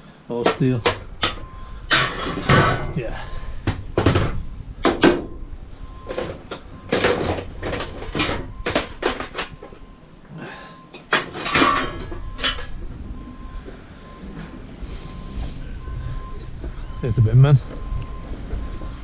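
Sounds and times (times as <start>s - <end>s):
scrap steel clanking onto pile: 0.3s - 10.0s, 10.9s - 12.8s.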